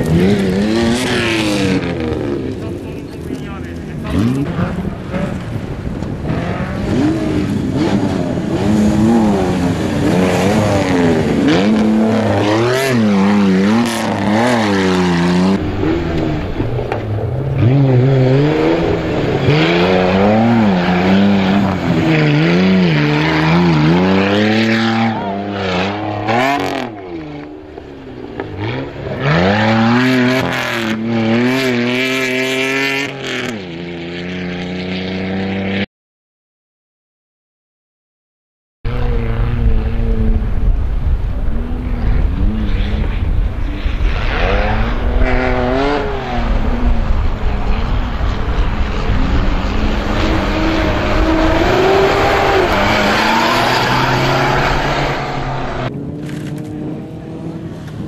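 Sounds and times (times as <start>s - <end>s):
engine revving hard: 6.2s - 16.6s, 17.5s - 27.0s, 43.8s - 57.7s.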